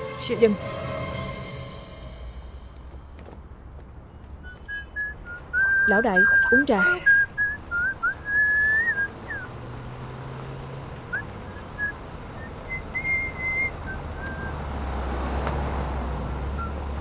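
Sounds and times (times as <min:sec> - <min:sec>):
car engine rumble: 0:02.0 - 0:17.0
whistled notes: 0:04.0 - 0:09.6, 0:11.1 - 0:14.6.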